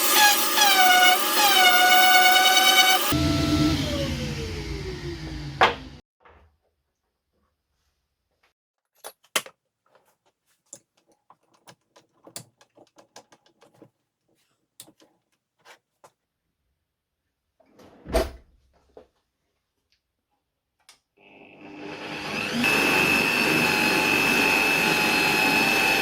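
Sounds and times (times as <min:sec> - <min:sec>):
motorized machine starting: 0:00.0 - 0:06.0.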